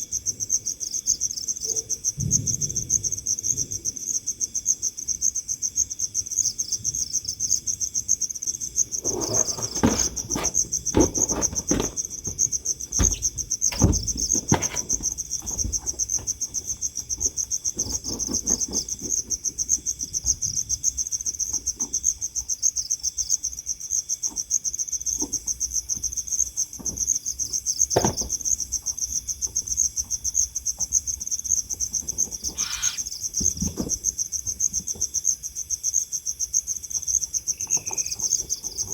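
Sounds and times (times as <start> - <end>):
crickets chirping: 0.0 - 38.9
knocks and rustles: 8.9 - 20.6, 27.9 - 28.5.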